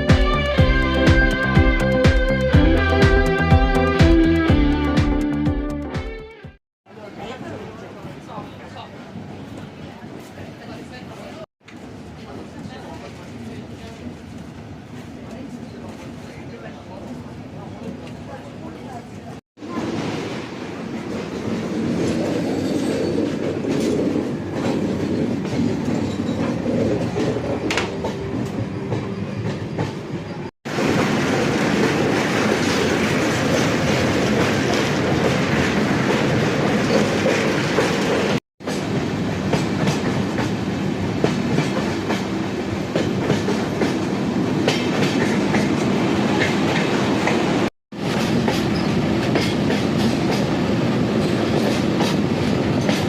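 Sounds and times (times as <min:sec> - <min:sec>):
train wheels rumbling on rail: 0:19.2 - 0:53.0.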